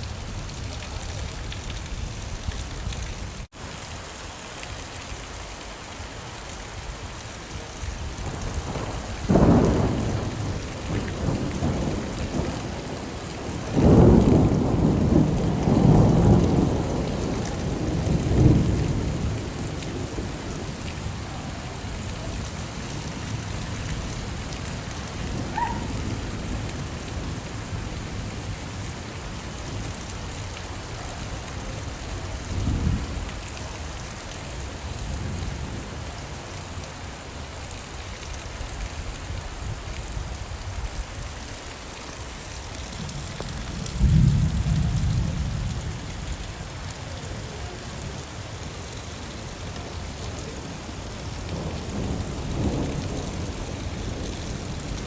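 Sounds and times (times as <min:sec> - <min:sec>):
steady rain: 0:00.0 - 0:55.0
thunder rumbling: 0:08.0 - 0:34.1, 0:42.8 - 0:46.4, 0:51.4 - 0:55.0.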